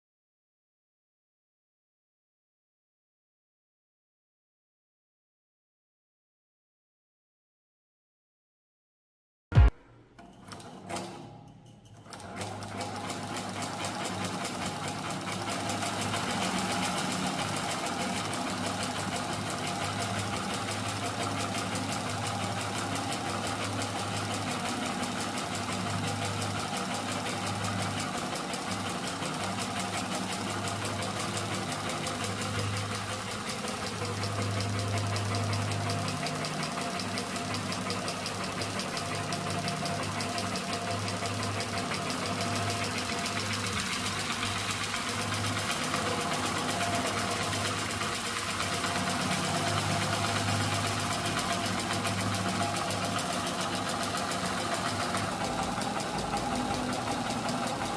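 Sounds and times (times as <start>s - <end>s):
model engine clicking and humming: 12.0s - 57.9s.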